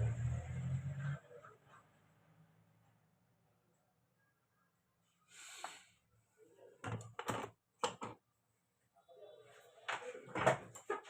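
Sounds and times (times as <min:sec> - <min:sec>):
clicks and knocks of hard parts: 0:06.8 - 0:08.2.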